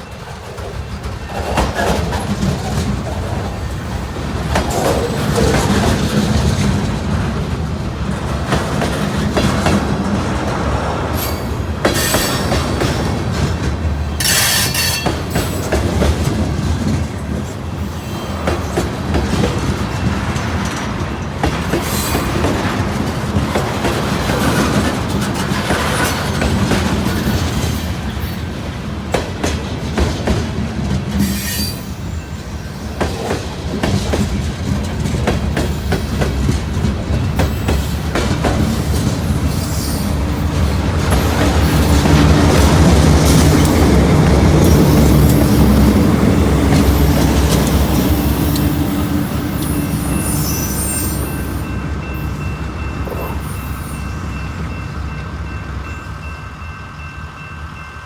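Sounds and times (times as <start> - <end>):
train wheels clacking: 0.0 - 56.0
diesel locomotive engines: 0.0 - 58.0
wheel squeal: 14.2 - 15.7, 31.2 - 32.1, 47.0 - 51.8.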